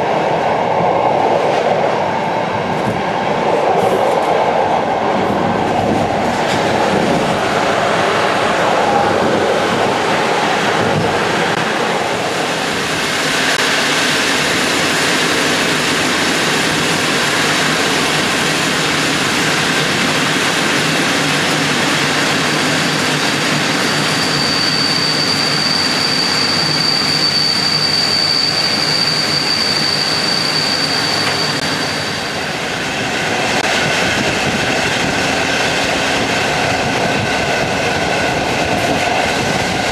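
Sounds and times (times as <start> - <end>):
train rumbling on rails: 0.0 - 39.9
high-pitched wheel squeal: 23.6 - 32.5.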